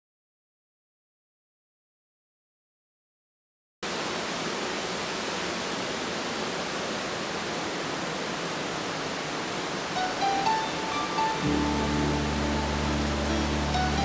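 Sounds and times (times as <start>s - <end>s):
waterfall and river rushing: 3.8s - 14.0s
faint musical tones: 10.0s - 14.0s.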